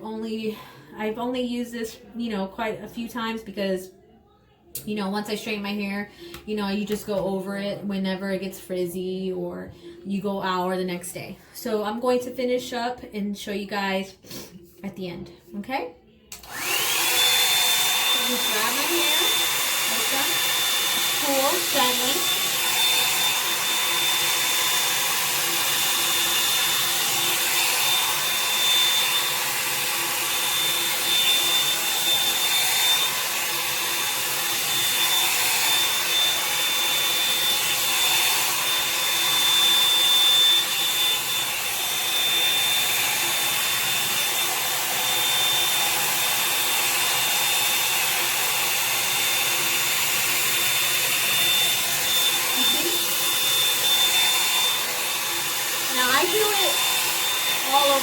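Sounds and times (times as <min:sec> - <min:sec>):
hair dryer brush whining: 0:16.3 - 0:58.0.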